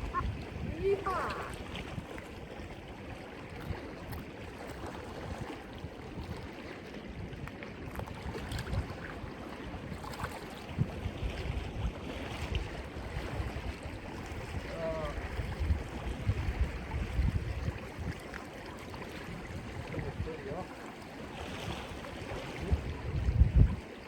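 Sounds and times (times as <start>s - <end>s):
surf on rocks: 0.0s - 2.4s
wind buffeting microphone: 0.0s - 20.7s, 21.4s - 24.0s.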